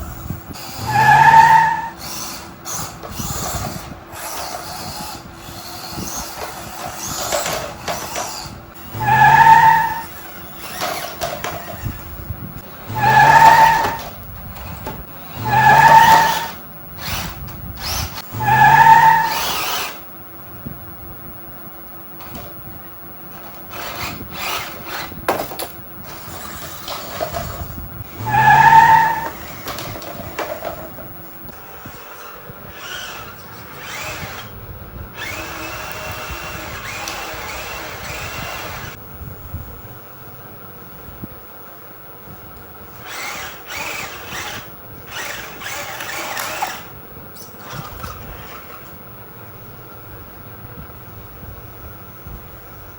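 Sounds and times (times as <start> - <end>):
small electric motors whirring: 0.0 - 20.1, 23.3 - 30.8, 31.4 - 39.0, 42.9 - 48.8.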